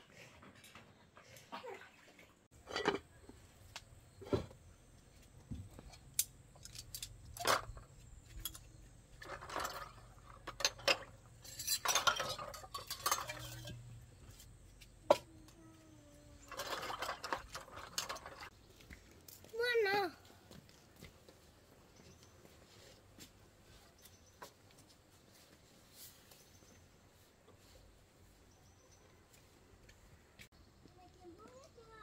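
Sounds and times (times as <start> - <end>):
dishes and utensils clinking: 2.6 - 3.1, 9.2 - 14.0.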